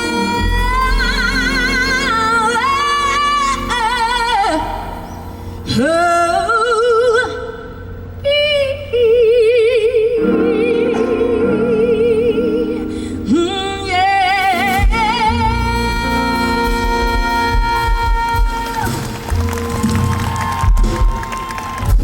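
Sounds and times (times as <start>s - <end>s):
woman singing soul ballad: 0.0s - 19.1s
band playing chords: 10.2s - 22.0s.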